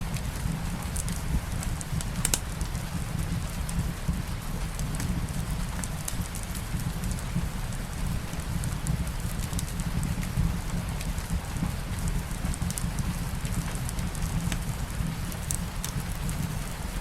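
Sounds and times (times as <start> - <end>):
light rain: 0.0 - 17.0
wood fire crackling: 0.1 - 17.0.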